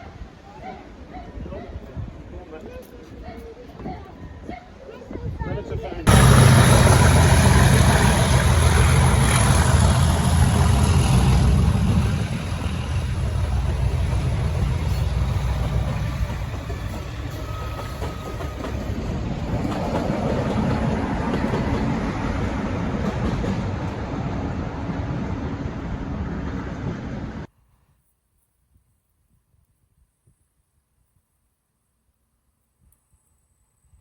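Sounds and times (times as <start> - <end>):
diesel locomotive engine drone: 6.1 - 27.5.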